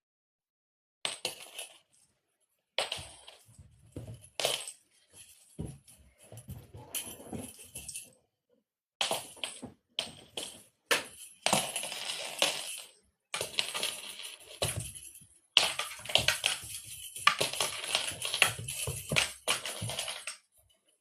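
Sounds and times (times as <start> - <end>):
cat toy jingling and rattling: 5.0 - 8.1, 13.4 - 20.3.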